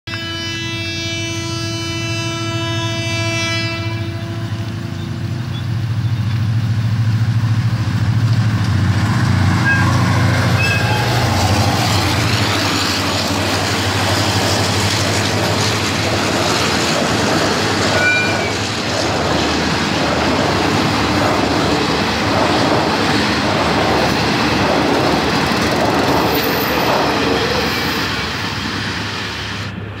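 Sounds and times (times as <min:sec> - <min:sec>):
locomotive diesel engine: 0:04.4 - 0:30.0
wheels clattering over rail joints: 0:08.2 - 0:28.2.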